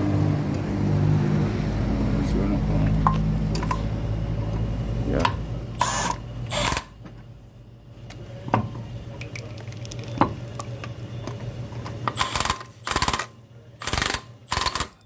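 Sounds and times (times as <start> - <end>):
ratchet rattling: 12.2 - 15.0.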